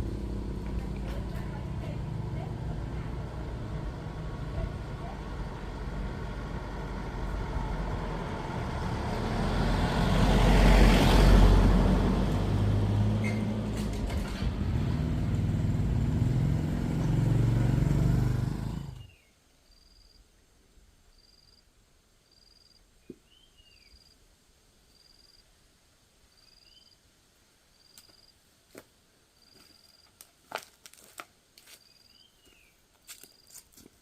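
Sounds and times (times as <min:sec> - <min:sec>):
motor vehicle passing: 0:00.0 - 0:19.1.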